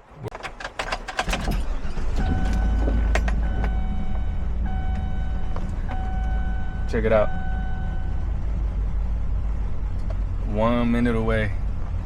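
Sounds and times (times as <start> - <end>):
vehicle engine running: 1.6 - 12.0
electronic tone: 2.1 - 8.2.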